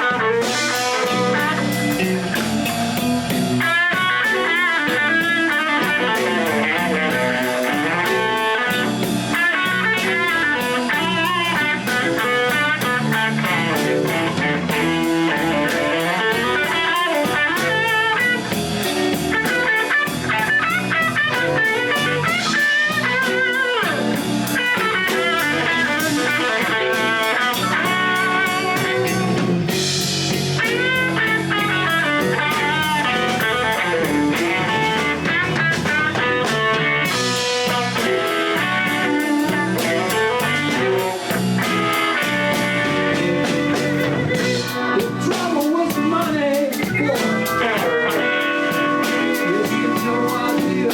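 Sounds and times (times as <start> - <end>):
blues band playing: 0.0 - 50.9
electric guitar bent notes: 0.0 - 50.9.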